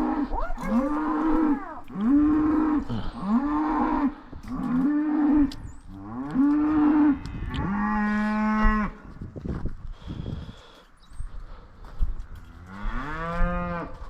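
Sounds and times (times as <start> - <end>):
cattle bawling: 0.0 - 5.6.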